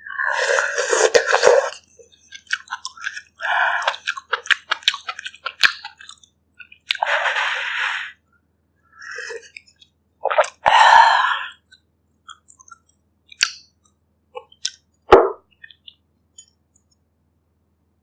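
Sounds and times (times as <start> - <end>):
eating mouth noises: 0.2 - 8.0
sharp mouth clicks and smacks: 11.6 - 14.9.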